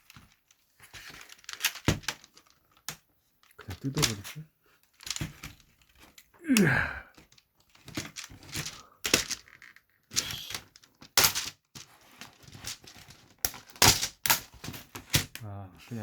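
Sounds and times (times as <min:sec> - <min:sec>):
plastic creaking: 0:00.0 - 0:06.3.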